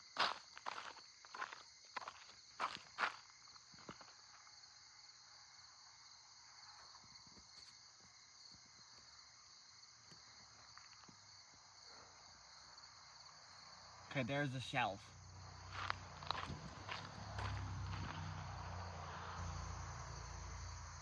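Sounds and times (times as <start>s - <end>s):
night insects trilling: 0.0s - 21.0s
footsteps: 15.6s - 18.7s.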